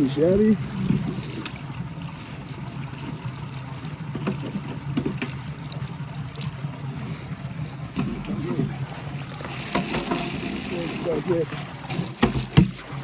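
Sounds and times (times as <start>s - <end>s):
stream water running: 0.0s - 13.0s.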